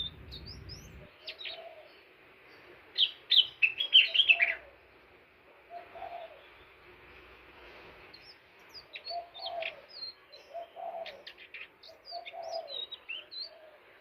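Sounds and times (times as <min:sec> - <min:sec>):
bird singing high chirps: 0:00.0 - 0:01.7, 0:03.0 - 0:04.6, 0:08.2 - 0:13.6.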